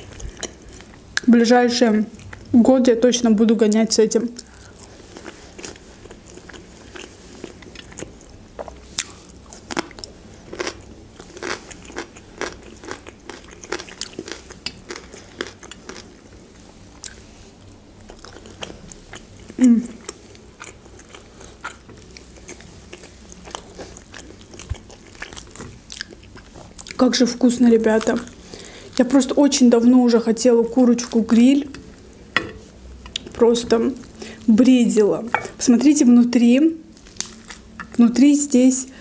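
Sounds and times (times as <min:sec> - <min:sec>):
person chewing food: 0:04.4 - 0:16.2, 0:16.9 - 0:27.0.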